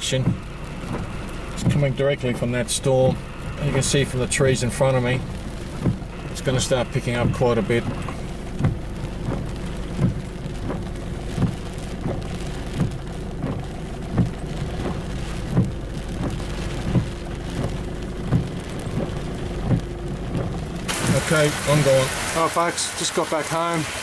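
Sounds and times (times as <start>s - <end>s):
steady low hum: 0.0s - 21.9s
rain falling steadily: 0.0s - 24.0s
short low thump: 7.2s - 21.3s.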